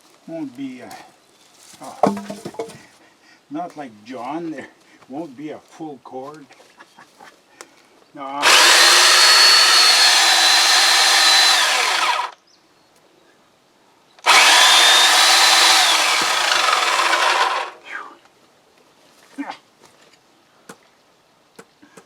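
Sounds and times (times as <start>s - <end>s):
electric chainsaw cutting wood: 2.0s - 2.7s, 8.4s - 12.4s, 14.2s - 17.8s.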